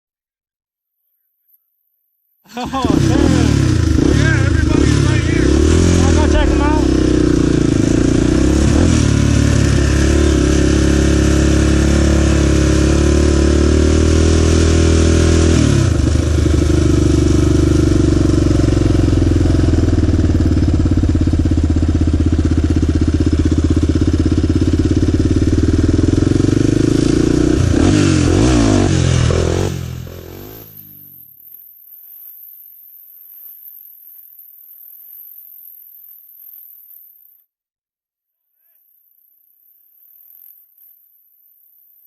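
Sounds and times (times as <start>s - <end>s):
off-road vehicle engine running: 2.6s - 31.4s.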